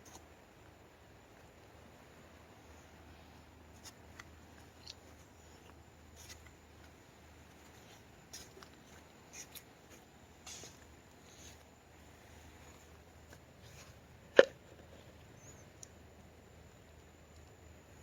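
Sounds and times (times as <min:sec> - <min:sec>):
faint clicks and rustles: 0:02.5 - 0:16.1.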